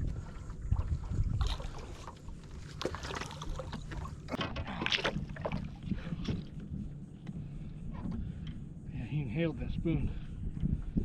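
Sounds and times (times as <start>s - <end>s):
water slapping against hull: 0.0s - 8.7s
wind rumble on microphone: 0.0s - 11.0s.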